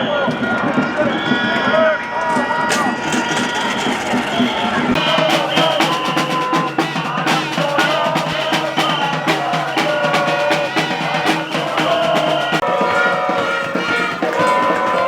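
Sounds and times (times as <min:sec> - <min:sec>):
rapid drumming: 0:02.4 - 0:15.0
sustained high tones: 0:08.4 - 0:15.0.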